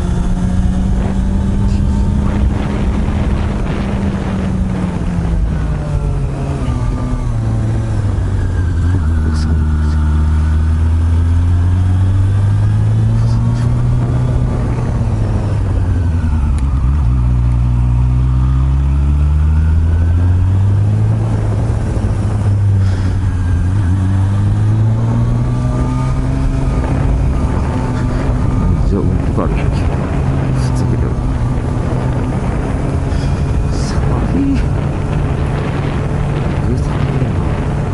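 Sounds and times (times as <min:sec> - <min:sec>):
motorcycle engine revving: 0:00.0 - 0:37.9
wind rush on microphone: 0:00.0 - 0:37.9.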